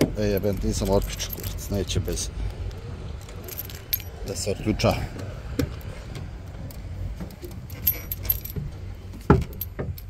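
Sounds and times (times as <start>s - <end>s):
low steady hum: 0.0s - 10.0s
keys jangling and clicking: 0.3s - 1.9s, 3.2s - 4.2s, 6.7s - 10.0s.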